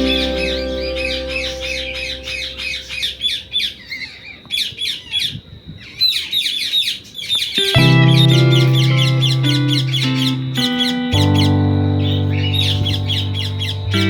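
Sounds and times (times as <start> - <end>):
background music with held tones: 0.0 - 3.3, 7.6 - 14.0
parrot squawking and chirping: 0.0 - 13.7.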